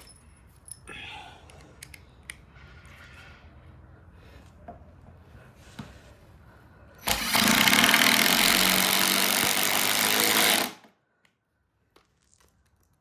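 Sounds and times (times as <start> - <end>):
power drill driving screw into wood: 7.0 - 10.9.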